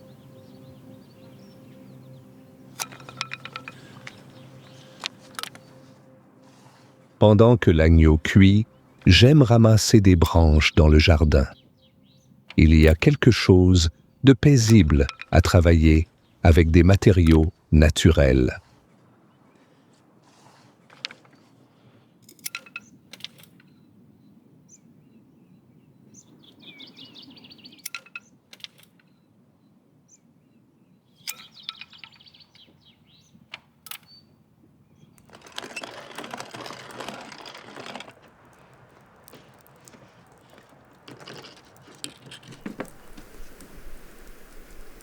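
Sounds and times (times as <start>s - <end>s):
branches rustling and crackling: 0.0s - 24.1s, 31.2s - 45.0s
twigs snapping: 2.7s - 6.9s, 35.2s - 45.0s.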